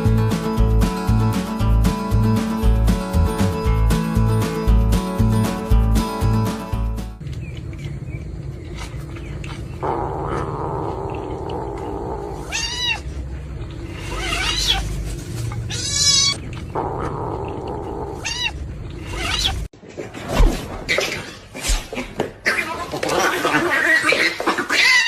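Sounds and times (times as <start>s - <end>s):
cat meowing: 12.4s - 13.1s, 14.0s - 14.9s, 15.7s - 16.4s, 18.1s - 19.7s.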